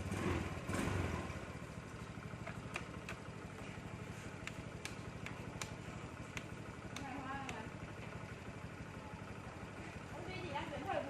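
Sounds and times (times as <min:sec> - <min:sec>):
motorbike engine idling: 0:00.0 - 0:11.0
sharp clicks: 0:04.4 - 0:07.8.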